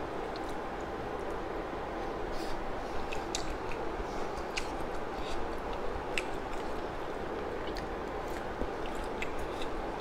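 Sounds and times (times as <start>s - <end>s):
background hum: 0.0s - 10.0s
person chewing noodles: 2.4s - 10.0s.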